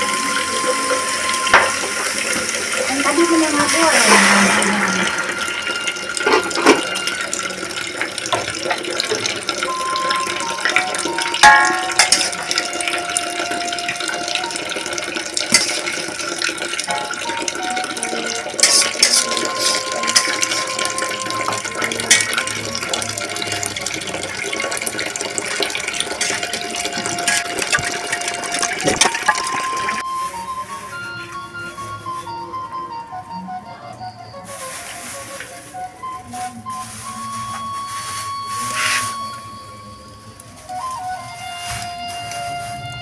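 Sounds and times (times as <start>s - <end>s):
meat sizzling in a wok: 0.0s - 24.3s
metal spatula scraping a wok: 18.6s - 20.9s.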